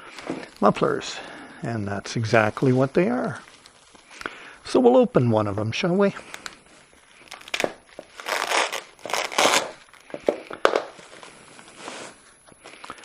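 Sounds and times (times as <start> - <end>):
packaging crinkling and tearing: 2.2 - 4.3, 6.2 - 12.1.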